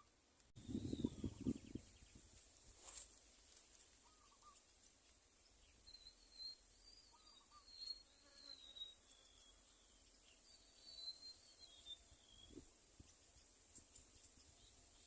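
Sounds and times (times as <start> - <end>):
distant bird chirps: 4.0 - 4.6, 5.5 - 15.0
whistled bird calls: 5.8 - 9.6, 10.4 - 12.6.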